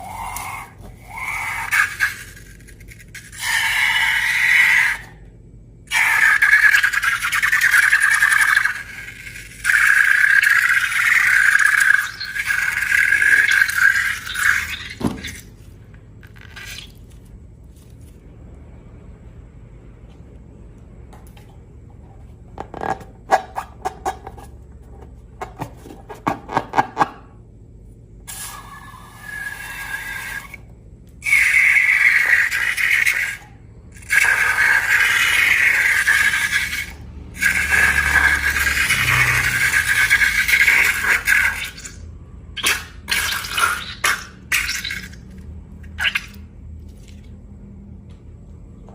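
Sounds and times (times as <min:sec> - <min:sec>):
rubber balloon squealing: 0:00.0 - 0:05.2.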